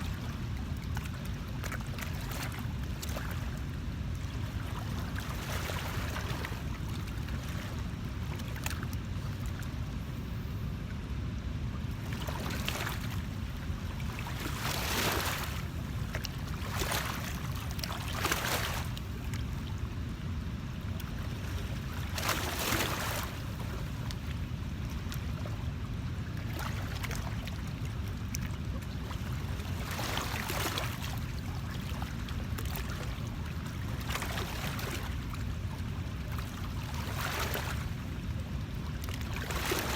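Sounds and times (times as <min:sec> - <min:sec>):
water swishing: 0:00.0 - 0:10.6, 0:11.4 - 0:19.9, 0:20.8 - 0:39.9
wind: 0:00.0 - 0:39.9.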